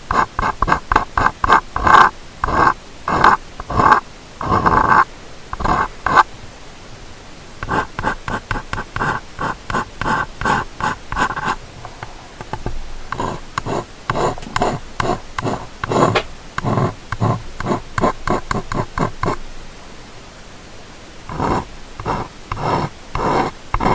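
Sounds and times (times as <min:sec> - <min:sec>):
ear-cleaning tool scratching microphone: 0:00.0 - 0:06.3, 0:07.6 - 0:19.4, 0:21.3 - 0:23.9.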